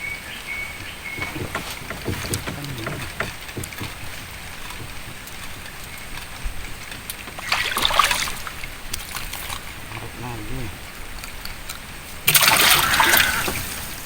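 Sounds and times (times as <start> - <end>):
water noise: 0.0 - 14.0
light knocks and clicks: 0.7 - 9.7.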